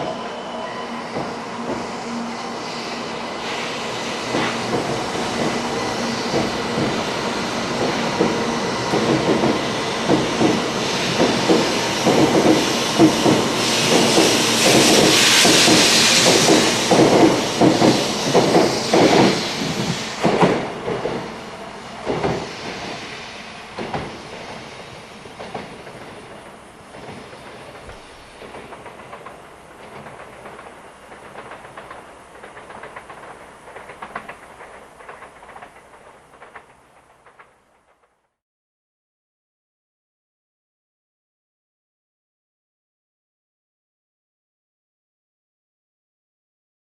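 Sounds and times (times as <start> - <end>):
loud hiss: 0.0 - 34.7
train wheels clacking over rail joints: 4.3 - 21.4, 22.0 - 23.1, 23.7 - 38.2.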